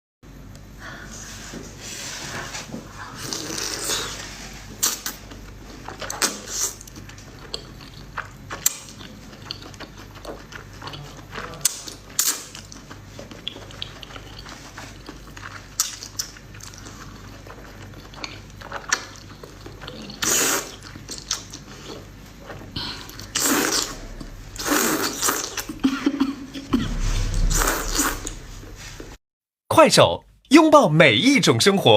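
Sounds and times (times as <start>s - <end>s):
chewing crispy fried food: 3.2s - 25.7s.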